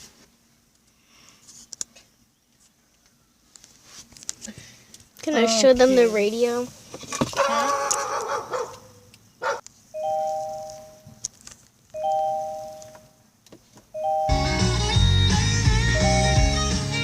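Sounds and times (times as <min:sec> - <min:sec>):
car two-note chime: 0:10.0 - 0:11.1, 0:12.0 - 0:13.2, 0:13.9 - 0:16.8
music from car radio: 0:14.0 - 0:17.0.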